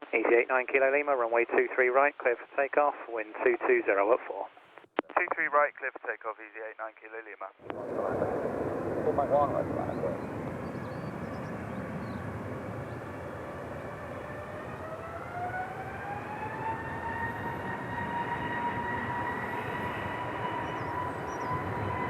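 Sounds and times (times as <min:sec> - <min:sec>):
jet engine roar: 0:07.6 - 0:22.0
jet engine whine: 0:07.6 - 0:22.0.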